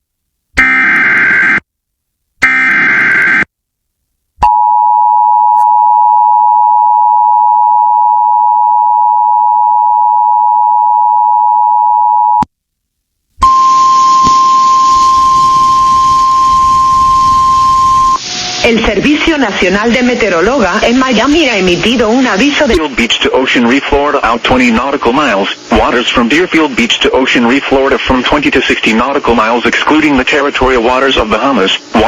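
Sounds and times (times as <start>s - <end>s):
data burst tones: 13.4s - 23.0s
radio hiss: 13.7s - 32.0s.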